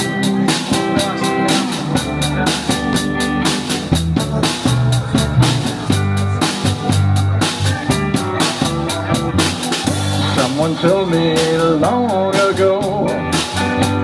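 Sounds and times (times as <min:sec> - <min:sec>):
drum kit steady beat: 0:00.0 - 0:14.0
rock band playing: 0:00.0 - 0:14.0.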